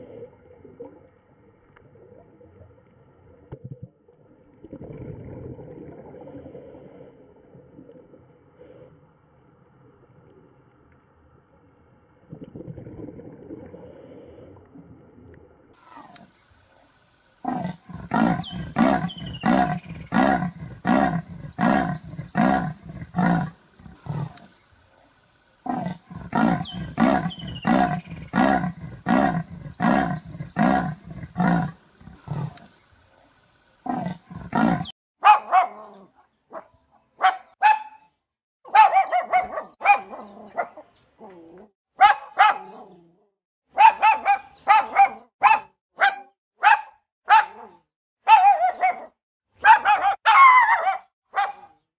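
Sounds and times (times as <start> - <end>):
big cat rasping call: 17.4 - 24.5, 25.6 - 32.7, 33.8 - 34.9
dog barking: 35.2 - 38.0, 38.7 - 40.9, 42.0 - 43.0, 43.7 - 51.8.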